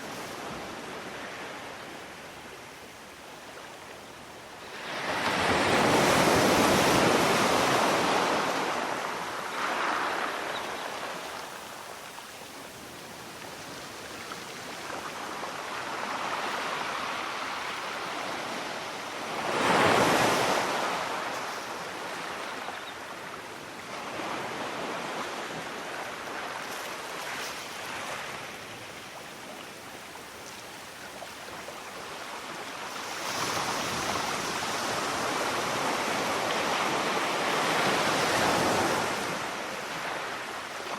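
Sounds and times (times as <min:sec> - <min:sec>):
sea waves breaking: 0:04.7 - 0:13.5, 0:14.3 - 0:23.2.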